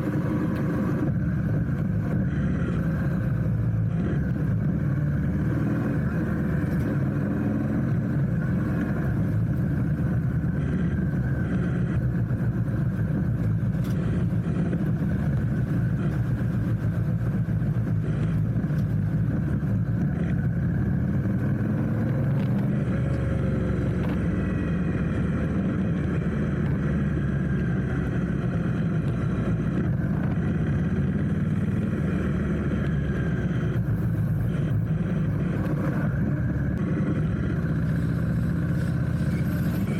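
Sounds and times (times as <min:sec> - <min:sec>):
faint engine tones: 0:00.0 - 0:39.9
motorcycle engine rumble: 0:00.0 - 0:39.9.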